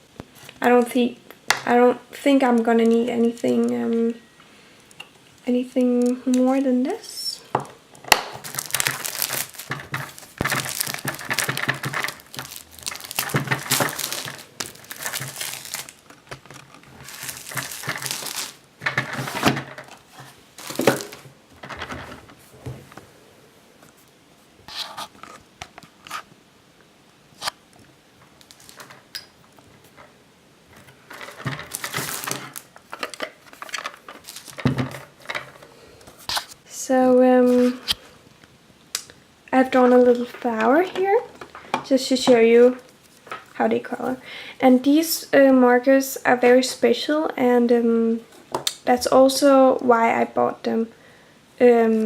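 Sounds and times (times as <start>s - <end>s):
packaging crinkling and tearing: 8.1s - 21.3s, 28.4s - 29.2s, 30.8s - 35.6s.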